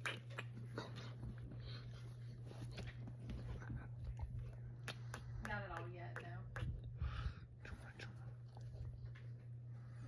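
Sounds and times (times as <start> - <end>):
dog rustling and snuffling: 0.0 - 5.4
steady low hum: 0.0 - 10.0.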